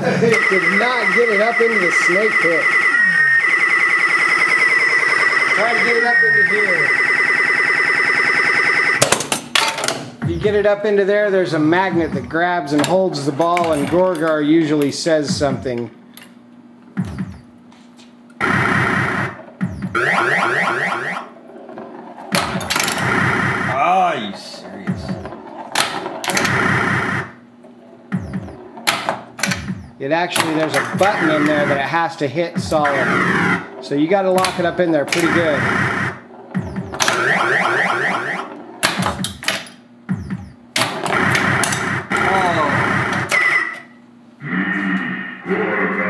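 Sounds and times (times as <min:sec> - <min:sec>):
pinball machine buzzing: 0:00.0 - 0:16.2, 0:16.9 - 0:17.6, 0:18.4 - 0:44.0
pinball clicks and knocks: 0:09.0 - 0:10.2, 0:12.7 - 0:15.0, 0:21.6 - 0:23.1, 0:24.2 - 0:26.6, 0:27.7 - 0:31.8, 0:32.7 - 0:35.6, 0:36.4 - 0:42.3.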